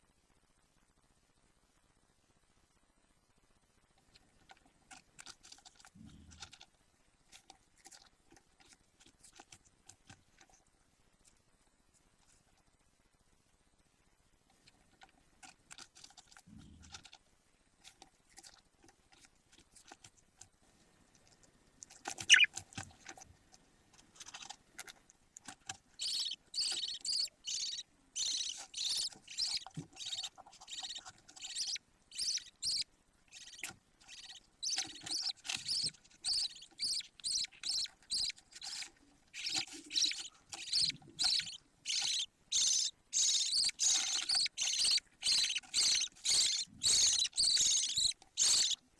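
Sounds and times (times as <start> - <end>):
faint scratching: 17.8 - 48.9
chicks cheeping: 22.2 - 22.5, 26.0 - 38.8, 39.4 - 48.8.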